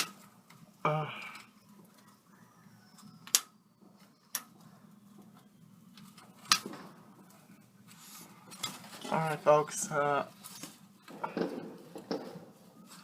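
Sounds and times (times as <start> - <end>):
background hum: 0.0 - 13.0
distant fireworks bangs: 11.1 - 12.6.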